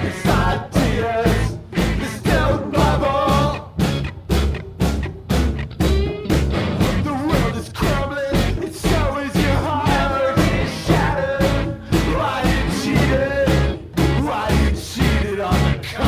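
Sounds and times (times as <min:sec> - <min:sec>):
person singing: 0:00.0 - 0:03.8, 0:07.0 - 0:16.0
rock band playing: 0:00.0 - 0:16.0.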